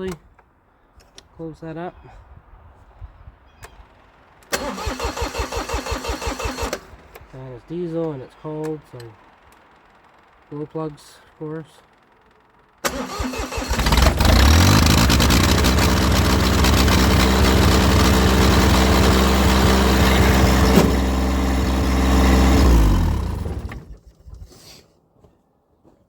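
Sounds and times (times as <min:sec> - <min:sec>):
diesel tractor engine starting: 0:04.4 - 0:07.4, 0:11.8 - 0:24.1.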